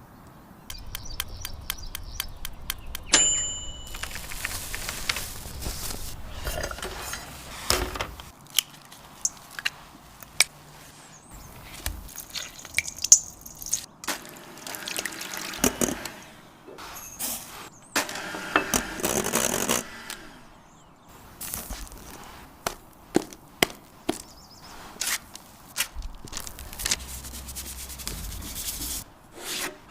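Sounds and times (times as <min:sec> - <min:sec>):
soft wet squishing: 0:08.3 - 0:15.6.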